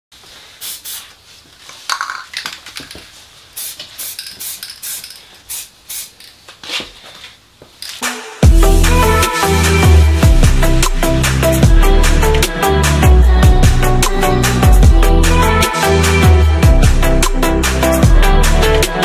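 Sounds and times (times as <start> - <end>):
electronic music with heavy beat: 8.0 - 19.0.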